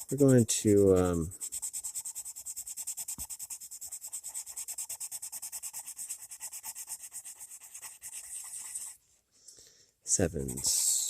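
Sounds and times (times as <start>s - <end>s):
pencil shading on paper: 0.0s - 9.0s, 10.2s - 11.0s.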